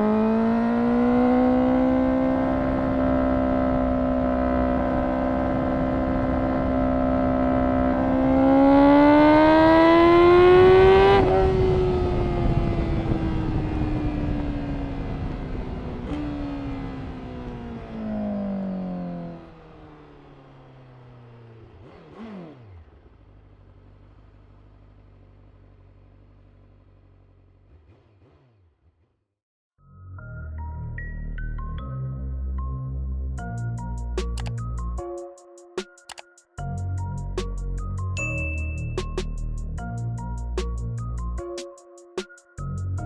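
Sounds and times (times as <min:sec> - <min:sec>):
rising and falling whine: 0:00.0 - 0:21.7
motorcycle engine revving: 0:00.0 - 0:29.2.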